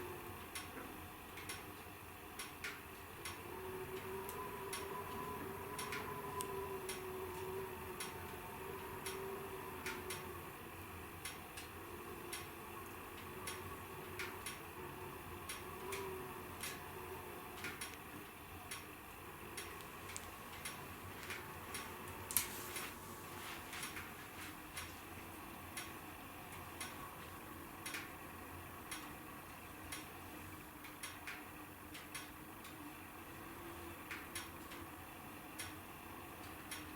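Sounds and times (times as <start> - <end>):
wood fire crackling and popping: 17.5 - 28.2.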